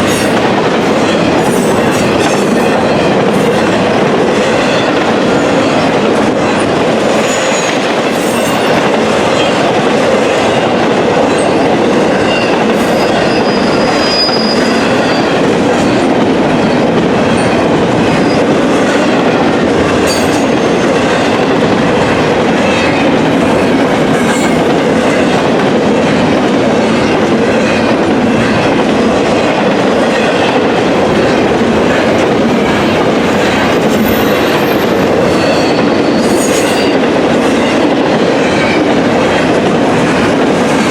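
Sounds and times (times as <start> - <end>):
freight train cars rolling: 0.0 - 40.9
high wheel squeal: 12.3 - 15.4.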